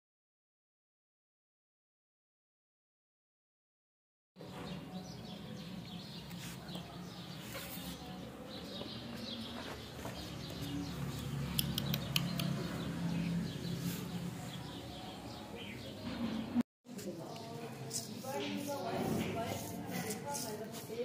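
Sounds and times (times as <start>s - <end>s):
small birds chirping: 4.4s - 21.0s
sharp clicks: 11.1s - 12.8s.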